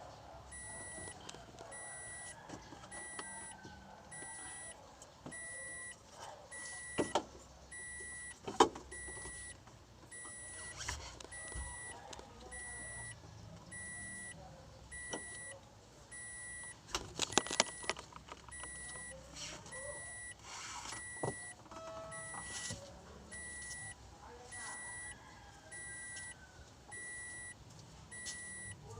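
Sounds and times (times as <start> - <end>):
high electronic beep: 0.5 - 1.2, 1.8 - 4.7, 5.3 - 6.0, 9.0 - 16.7, 21.0 - 22.7.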